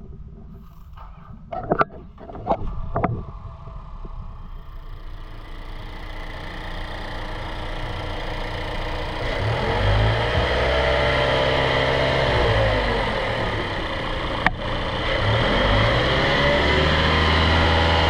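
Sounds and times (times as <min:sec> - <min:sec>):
car engine idling: 0:02.0 - 0:18.0.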